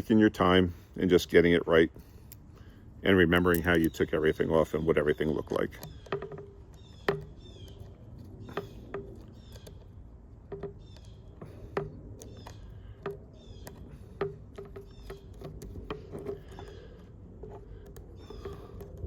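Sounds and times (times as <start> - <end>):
high bird chirps: 5.0 - 17.0.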